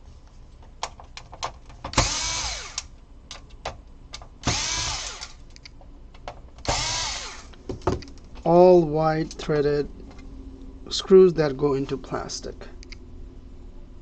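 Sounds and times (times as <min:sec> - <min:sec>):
electric screwdriver whining: 0:02.0 - 0:02.9, 0:04.4 - 0:05.4, 0:06.6 - 0:07.6.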